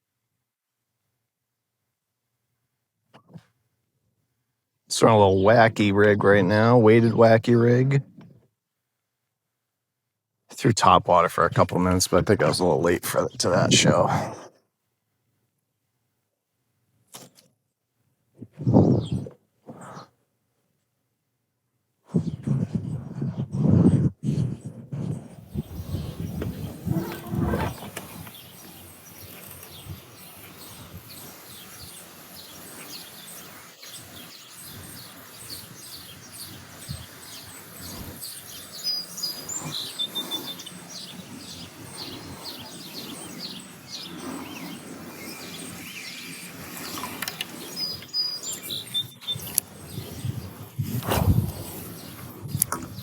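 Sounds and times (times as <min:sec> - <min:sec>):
birds chirping and singing: 0:25.0 - 0:53.0
whistled bird call: 0:28.3 - 0:47.0, 0:47.6 - 0:50.5.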